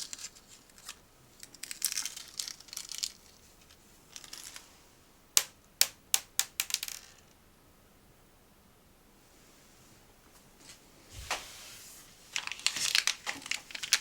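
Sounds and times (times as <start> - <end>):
packaging crinkling: 12.3 - 14.0
packaging sharp snaps: 12.4 - 14.0.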